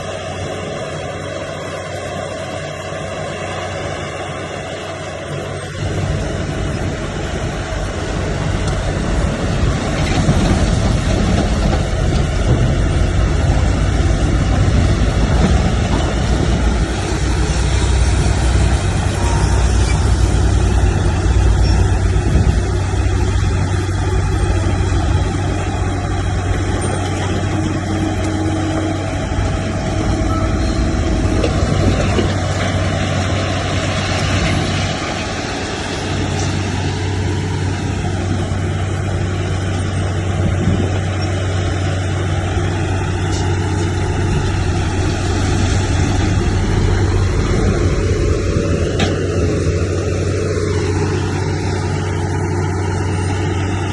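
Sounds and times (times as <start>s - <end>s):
diesel engine running under load: 0.0s - 53.9s.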